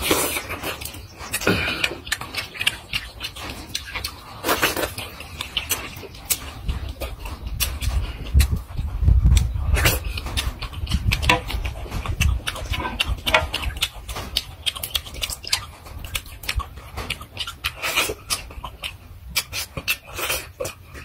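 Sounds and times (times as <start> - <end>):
lip smacks: 0.0 - 21.0
man chewing wetly: 0.0 - 21.0
breaths: 1.4 - 2.1
low rumble: 6.2 - 13.9.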